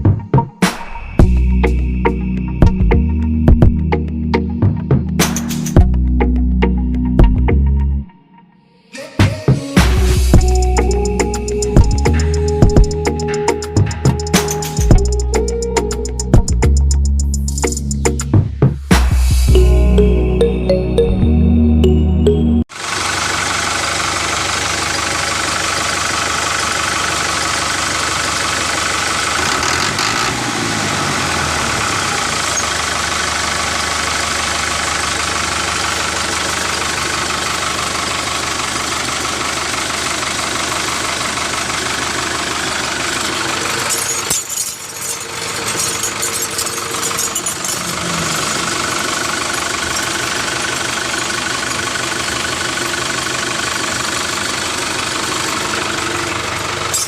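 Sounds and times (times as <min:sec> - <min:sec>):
small engine running: 0:09.8 - 0:18.1, 0:22.7 - 0:57.0
clatter and clicks: 0:43.6 - 0:53.3.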